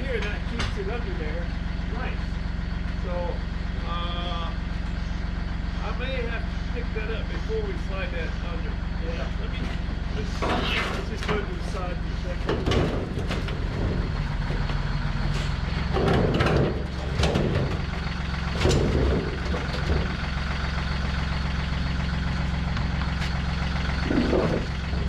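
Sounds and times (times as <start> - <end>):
clanks and knocks of shop work: 0.0 - 1.5, 9.4 - 20.3, 22.7 - 25.0
engine idling: 0.0 - 25.0.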